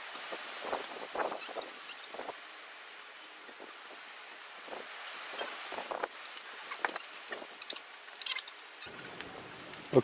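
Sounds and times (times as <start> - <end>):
wind noise on microphone: 0.0 - 2.5, 3.4 - 7.8.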